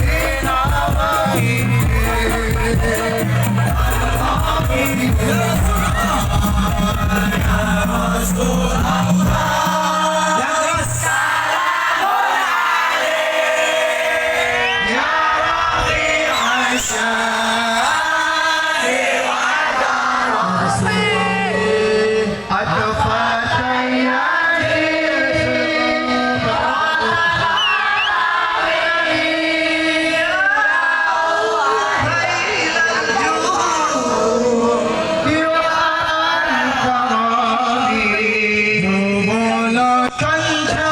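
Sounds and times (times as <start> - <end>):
low bass: 0.0 - 10.3
crowd singing along: 0.0 - 40.9
voices singing a melody: 0.0 - 40.9.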